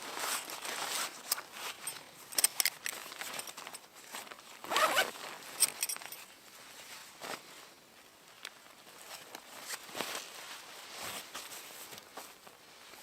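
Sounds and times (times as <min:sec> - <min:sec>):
zipper being pulled: 0:04.6 - 0:05.2.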